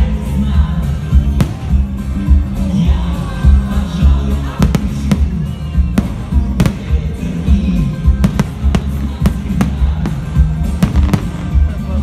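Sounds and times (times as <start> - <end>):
loud music with deep bass: 0.0 - 12.0
fireworks bursting with sharp bangs: 1.2 - 2.6, 4.0 - 12.0.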